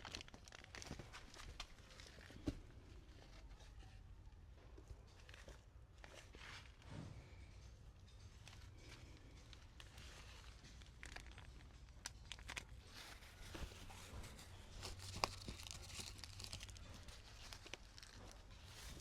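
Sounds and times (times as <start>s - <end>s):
faint rustling: 4.7s - 19.0s.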